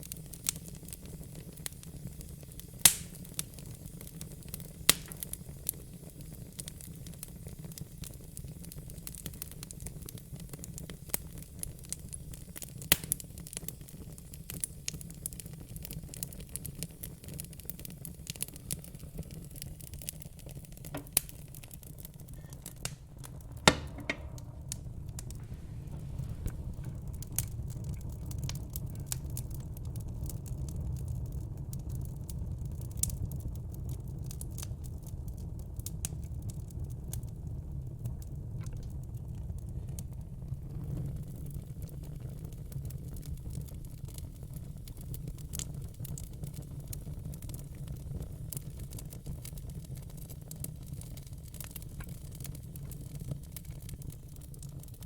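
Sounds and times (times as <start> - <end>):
fire crackling and popping: 0.0 - 55.0
low steady rumble: 20.3 - 31.2.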